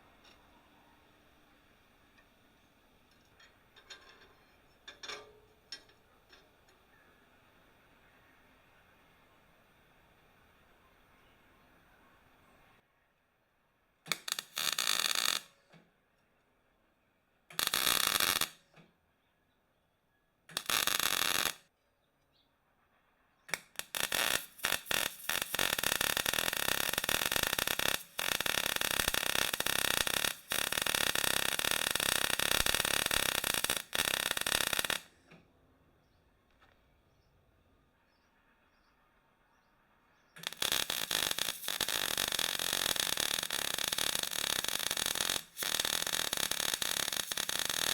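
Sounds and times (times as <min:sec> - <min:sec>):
welding on steel: 0:01.6 - 0:06.9, 0:14.1 - 0:15.6, 0:17.5 - 0:18.8, 0:20.5 - 0:21.6, 0:23.5 - 0:35.2, 0:40.4 - 0:47.9.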